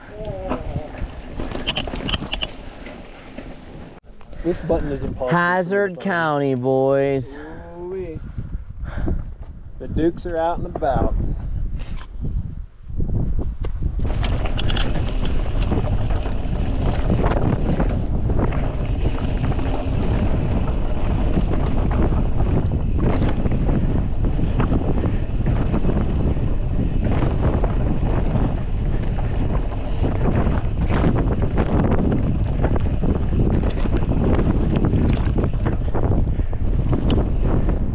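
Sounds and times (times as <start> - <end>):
wind rushing over microphone: 0.0 - 2.7, 7.4 - 37.9
tyre noise on dirt trail: 0.0 - 6.9, 10.3 - 37.9
bike knocking and rattling: 0.3 - 4.0, 13.6 - 37.9.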